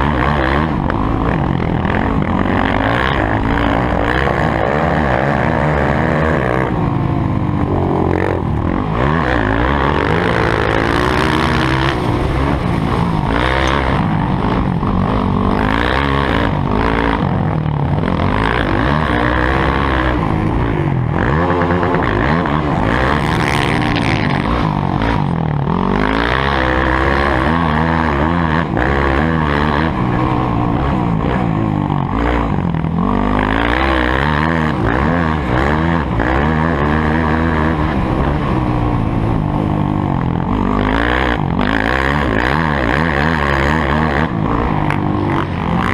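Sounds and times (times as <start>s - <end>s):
motorcycle engines revving: 0.0s - 45.9s.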